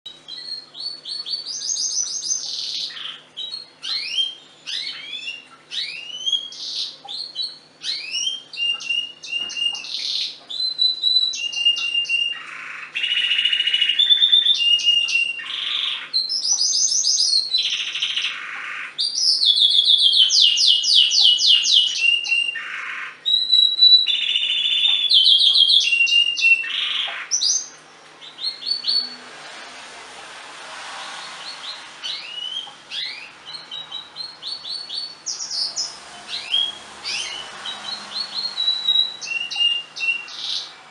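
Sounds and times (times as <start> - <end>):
canary singing trills: 0.1 - 29.3, 31.0 - 40.9.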